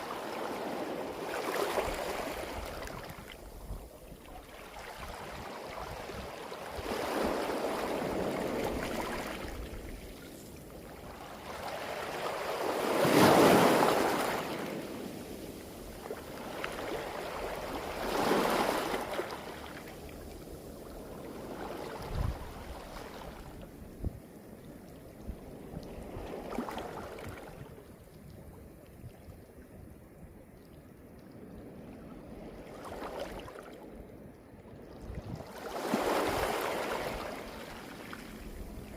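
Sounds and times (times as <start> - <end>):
waves surging on pebble beach: 11.1 - 19.8, 35.6 - 38.4.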